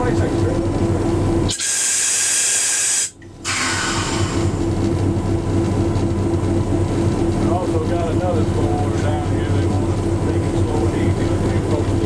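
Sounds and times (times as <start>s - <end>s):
locomotive engine drone: 0.0s - 12.0s
loud high hiss: 1.5s - 4.3s.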